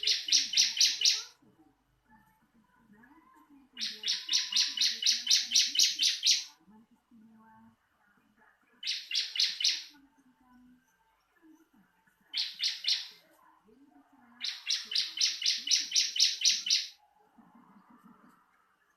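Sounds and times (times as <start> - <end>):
bird song of rapid high notes: 0.0 - 1.4, 3.8 - 6.6, 8.2 - 13.3, 14.4 - 18.9.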